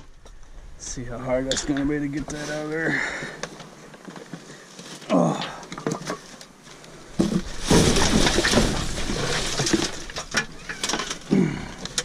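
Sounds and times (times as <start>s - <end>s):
trash scraping and rustling: 1.5s - 12.0s.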